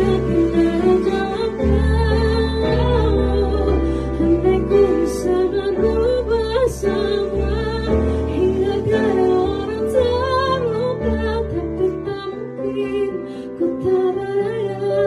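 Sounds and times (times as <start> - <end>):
soft instrumental accompaniment: 0.0 - 15.0
woman singing a ballad: 0.0 - 15.0.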